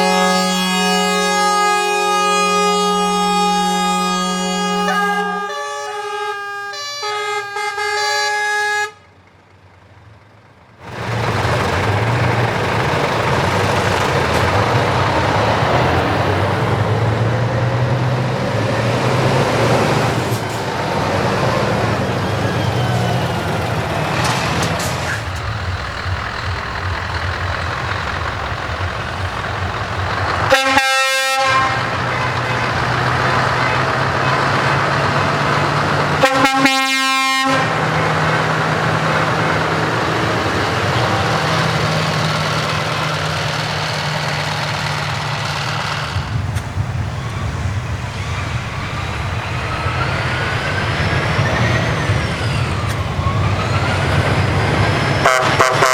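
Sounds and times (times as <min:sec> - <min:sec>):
multi-tone truck air horns: 0:00.0 - 0:09.2, 0:28.4 - 0:46.4, 0:52.8 - 0:55.9
diesel trucks exhaust rumble: 0:00.0 - 0:55.9.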